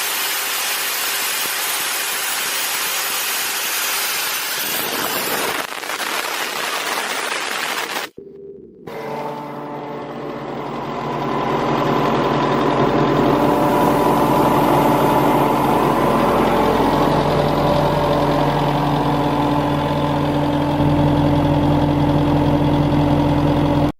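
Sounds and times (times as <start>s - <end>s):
diesel compressor engine running: 8.1s - 23.9s.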